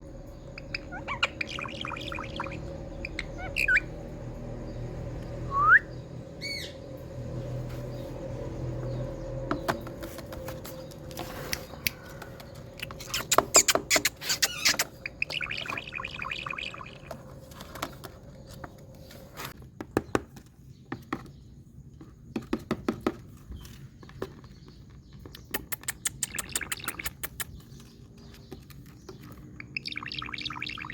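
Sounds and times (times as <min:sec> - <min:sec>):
parakeet chirping and squawking: 0:00.1 - 0:04.3, 0:06.4 - 0:06.8, 0:12.7 - 0:17.7, 0:26.0 - 0:27.8, 0:29.5 - 0:30.9
parakeet rising whistle: 0:00.6 - 0:03.9, 0:05.5 - 0:06.7.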